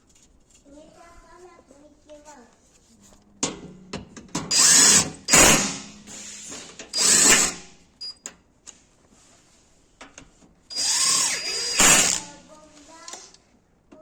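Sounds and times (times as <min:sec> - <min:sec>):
power tool bursts: 0:04.5 - 0:07.8, 0:10.7 - 0:12.5.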